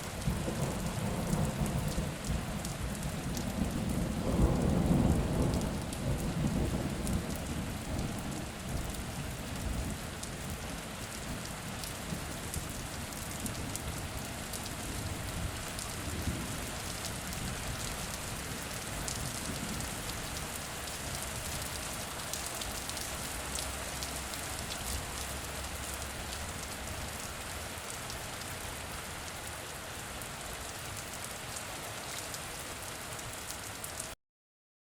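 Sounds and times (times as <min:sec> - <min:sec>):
heavy rain pattering: 0:00.0 - 0:34.2
thunder rumbling: 0:00.2 - 0:08.9.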